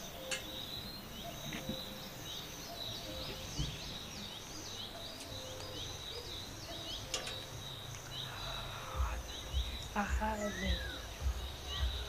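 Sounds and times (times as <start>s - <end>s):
small birds chirping: 0.0s - 12.0s
low thumps: 9.0s - 12.0s.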